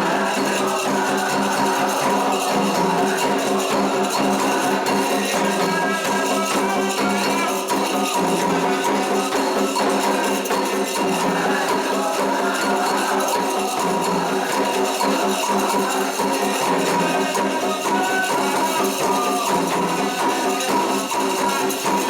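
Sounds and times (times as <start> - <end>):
hand percussion: 0.0 - 22.0
jingling shaker rattle: 0.0 - 22.0
voices singing held notes: 0.0 - 22.0.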